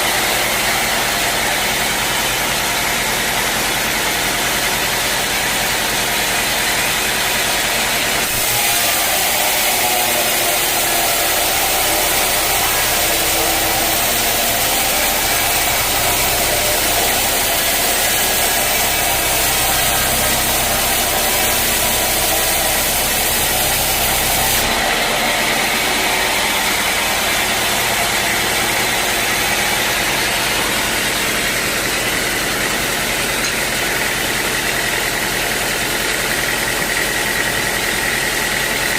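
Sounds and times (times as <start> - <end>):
band saw sawing log: 0.0 - 38.9.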